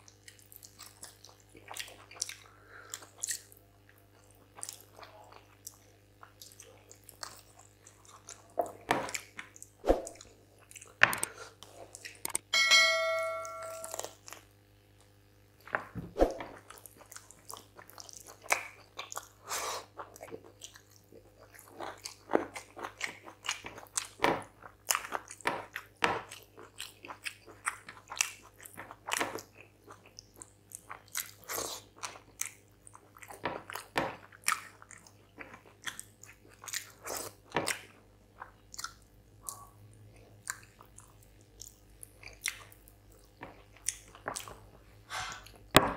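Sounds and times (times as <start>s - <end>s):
chewing and lip-smacking: 0.0s - 12.4s, 16.5s - 44.8s
short ringing chime: 12.5s - 14.1s.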